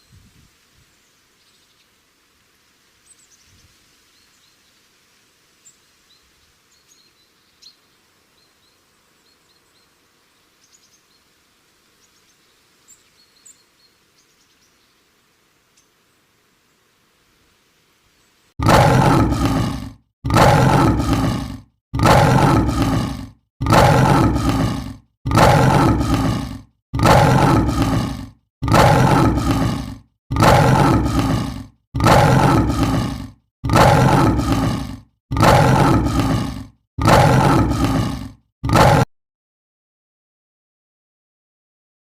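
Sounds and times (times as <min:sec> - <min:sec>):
animal roaring: 0:18.6 - 0:39.1.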